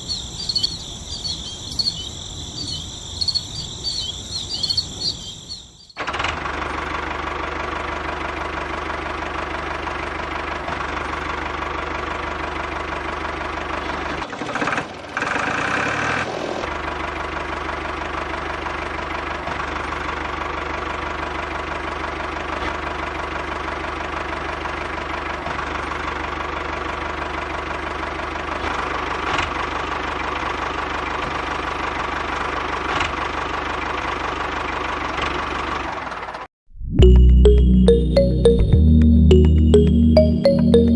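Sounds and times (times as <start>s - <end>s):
miniature diesel engine running: 6.0s - 36.4s.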